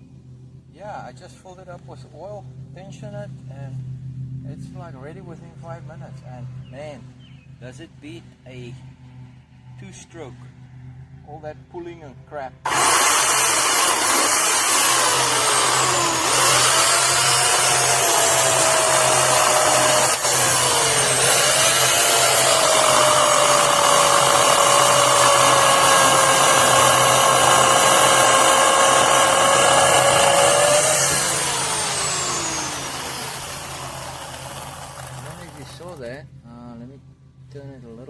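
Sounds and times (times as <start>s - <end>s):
electric chainsaw cutting log: 12.7s - 36.0s.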